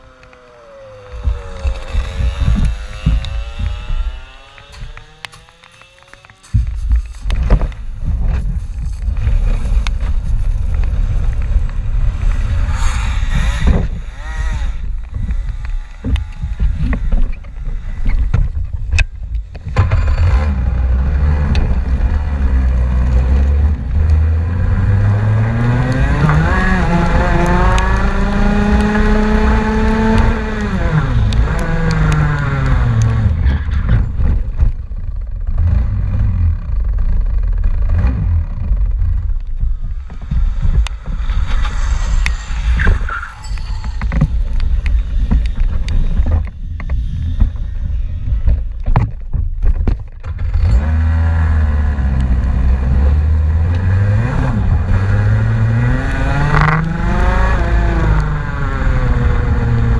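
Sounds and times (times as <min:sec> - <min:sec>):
car engine accelerating hard: 0:00.0 - 0:07.8, 0:19.7 - 0:34.4, 0:50.4 - 0:59.9
wind rumble on microphone: 0:00.9 - 0:05.6, 0:06.5 - 0:59.9.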